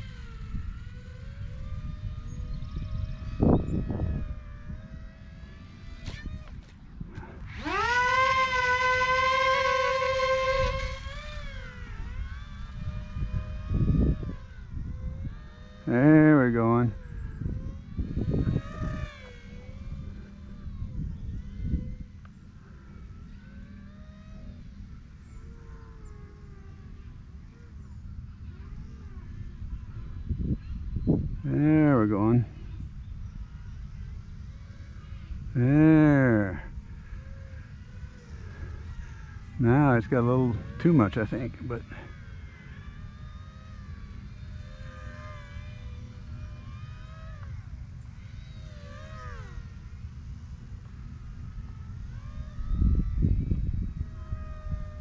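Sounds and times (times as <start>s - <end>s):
model plane motor whine: 0.0s - 55.0s
wind rumble on microphone: 0.0s - 55.0s.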